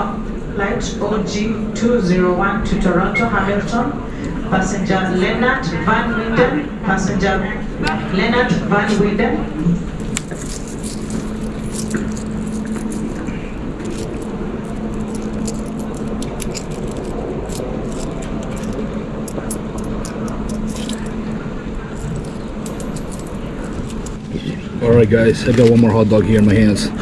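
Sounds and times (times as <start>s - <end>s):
steady droning hum: 0.0s - 27.0s
light clicks and clinks: 9.9s - 24.6s.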